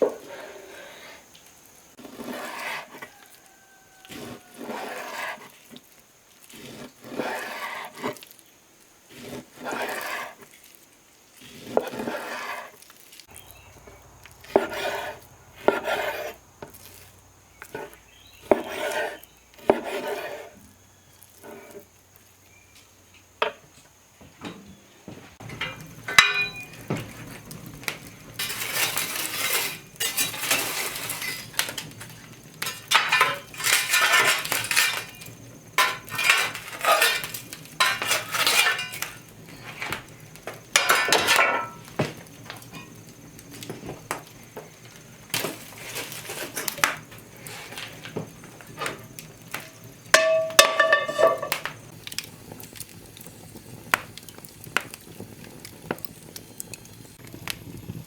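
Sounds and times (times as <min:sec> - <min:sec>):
utensils clinking and scraping: 0:25.4 - 0:43.7, 0:45.3 - 0:52.8.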